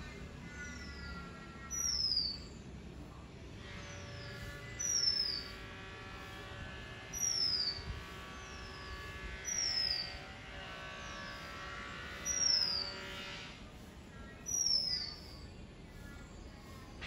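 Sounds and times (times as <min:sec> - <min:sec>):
faint drone of held tones: 0:00.0 - 0:17.0.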